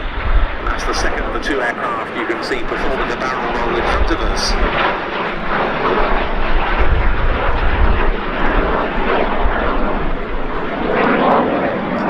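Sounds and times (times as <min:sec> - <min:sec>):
heavy low rumble: 0:00.0 - 0:12.0
jet engines roaring overhead: 0:00.0 - 0:12.0.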